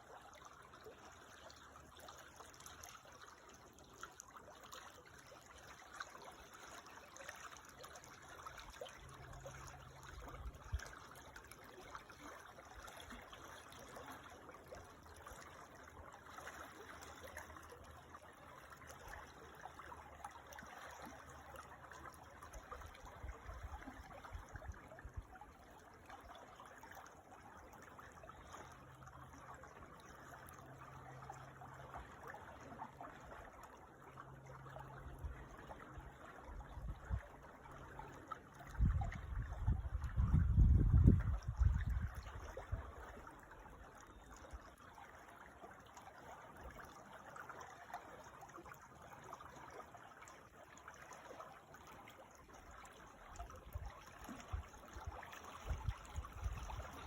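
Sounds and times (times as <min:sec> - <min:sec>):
creek babbling over stones: 0:00.0 - 0:57.0.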